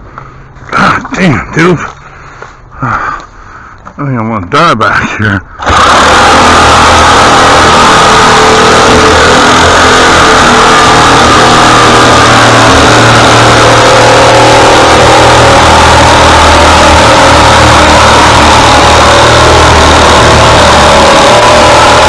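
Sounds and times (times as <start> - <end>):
small gasoline engine running: 5.6 - 22.0.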